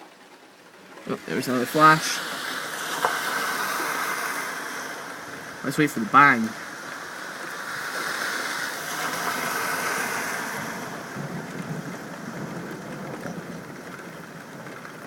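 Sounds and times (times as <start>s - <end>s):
steady rain: 0.0s - 15.0s
distant thunder rumbling: 8.0s - 15.0s.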